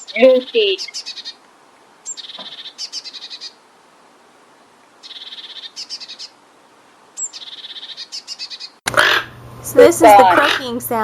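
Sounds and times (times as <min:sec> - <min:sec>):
blue tit singing: 0:00.0 - 0:01.4, 0:02.0 - 0:03.6, 0:05.0 - 0:06.4, 0:07.2 - 0:08.8.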